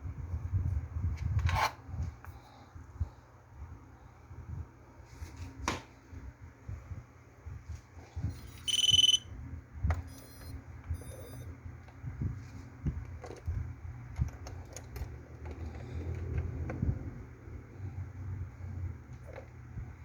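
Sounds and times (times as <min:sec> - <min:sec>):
faint high-pitched beeps: 0:08.3 - 0:09.3, 0:10.0 - 0:11.5
loud electronic beep: 0:08.3 - 0:09.3, 0:10.1 - 0:11.5.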